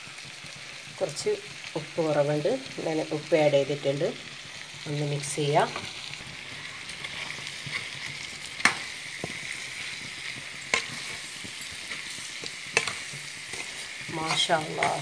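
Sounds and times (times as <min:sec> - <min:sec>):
food sizzling in a pan: 0:00.0 - 0:15.0
utensil clicking against pan: 0:06.9 - 0:15.0.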